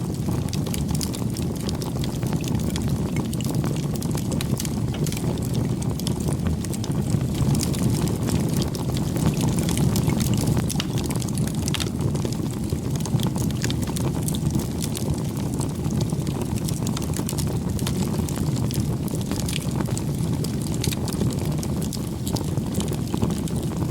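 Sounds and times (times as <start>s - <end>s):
campfire flames rumbling: 0.0s - 23.9s
wood crackling and popping: 0.0s - 23.9s.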